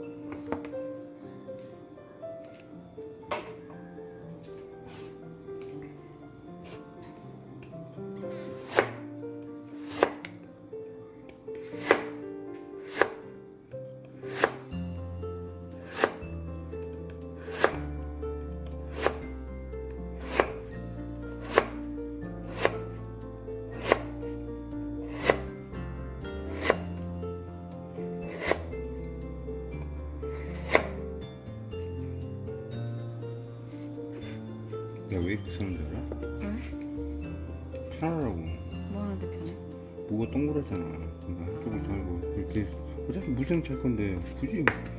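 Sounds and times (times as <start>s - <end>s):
background music: 0.0s - 44.9s
knife chopping on cutting board: 8.6s - 9.0s, 9.8s - 10.4s, 11.7s - 12.2s, 12.9s - 13.2s, 14.3s - 14.7s, 15.8s - 16.2s, 17.4s - 17.8s, 18.9s - 19.2s, 20.2s - 20.7s, 21.4s - 21.8s, 22.4s - 22.8s, 23.8s - 24.2s, 25.1s - 25.5s, 26.6s - 26.8s, 28.3s - 28.6s, 30.6s - 31.0s, 44.6s - 44.9s.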